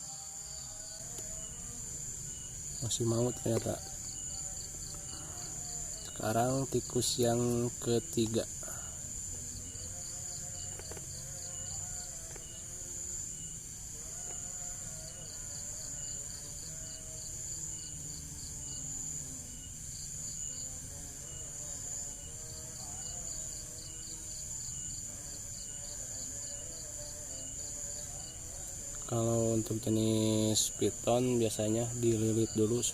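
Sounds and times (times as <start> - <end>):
crickets chirping: 0.0 - 32.9.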